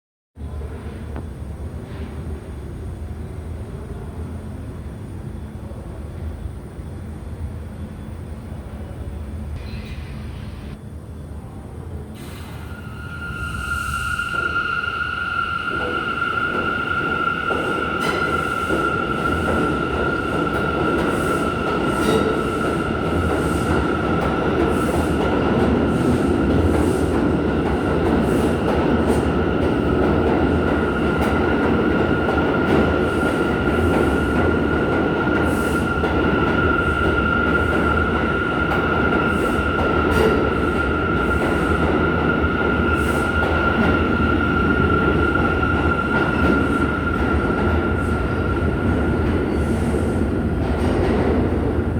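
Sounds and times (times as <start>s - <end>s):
subway cars rumbling: 0.4s - 51.9s
subway wheels squealing: 9.5s - 10.8s, 12.1s - 51.9s.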